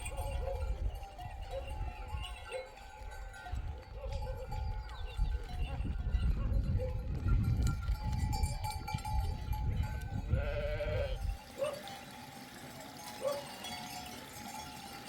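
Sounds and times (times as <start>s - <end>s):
sheep bleating: 10.3s - 11.4s.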